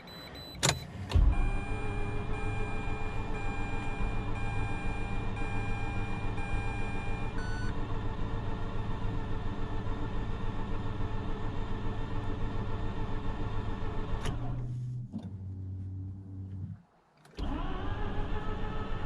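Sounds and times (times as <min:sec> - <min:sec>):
engine cranking by starter: 0:17.3 - 0:19.0.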